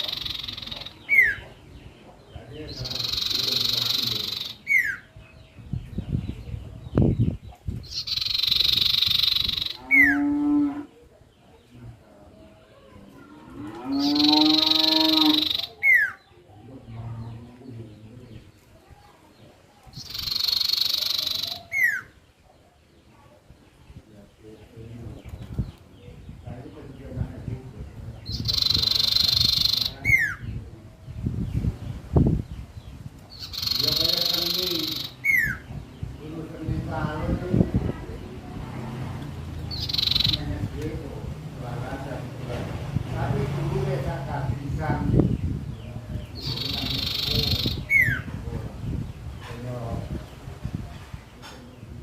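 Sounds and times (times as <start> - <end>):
songbird buzzy trill and whistle: 0.0 - 1.4, 2.8 - 5.1, 7.9 - 10.2, 14.0 - 16.2, 20.0 - 22.2, 28.3 - 30.4, 33.3 - 35.6, 39.7 - 40.4, 46.4 - 48.3
songbird calling: 0.0 - 11.7, 12.4 - 27.2, 28.2 - 38.4, 39.4 - 41.1, 45.1 - 50.4.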